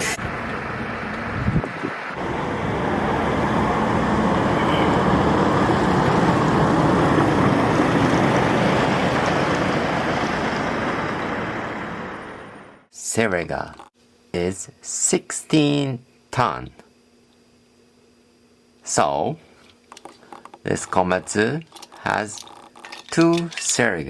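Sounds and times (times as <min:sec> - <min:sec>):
road vehicle engine and tyres: 0:00.0 - 0:12.9.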